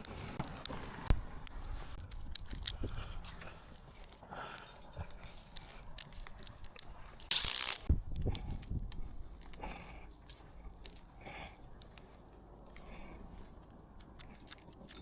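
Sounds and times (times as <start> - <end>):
small clicks and knocks: 11.8 - 15.0.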